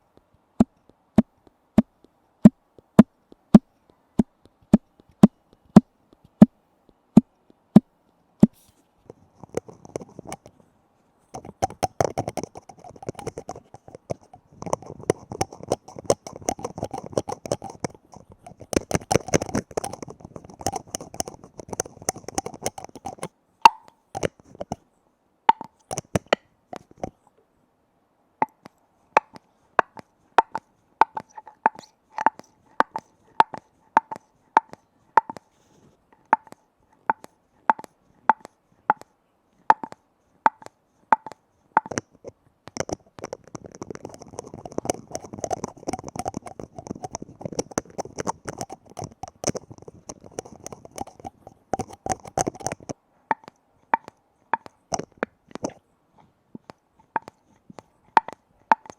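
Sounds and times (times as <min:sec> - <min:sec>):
scratching on lid: 0:11.4 - 0:23.3, 0:42.8 - 0:52.9
fingers tapping on container lid: 0:11.4 - 0:24.8, 0:28.4 - 0:35.4, 0:36.2 - 0:39.1, 0:39.7 - 0:42.0, 0:42.7 - 0:55.8, 0:57.1 - 0:58.9.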